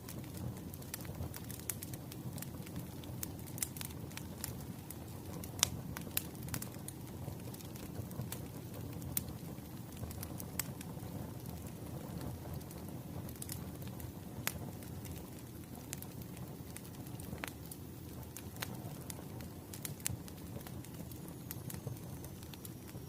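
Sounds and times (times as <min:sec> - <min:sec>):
logs crackling and popping: 0:00.0 - 0:23.0
wood fire rumbling: 0:00.0 - 0:23.0.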